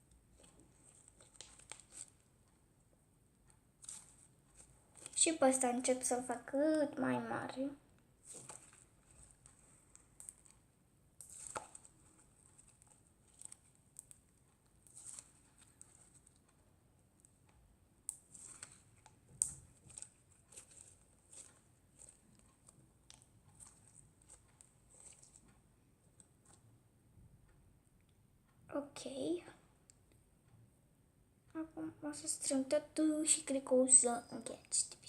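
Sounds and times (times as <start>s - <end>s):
slime crackling and clicking: 0.4s - 2.2s, 8.3s - 10.6s, 11.2s - 16.5s, 18.1s - 25.4s.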